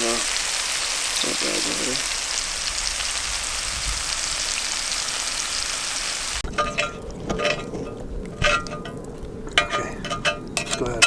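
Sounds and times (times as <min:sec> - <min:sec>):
meat sizzling in a pan: 0:00.0 - 0:06.5
light clinks and taps: 0:06.5 - 0:11.0.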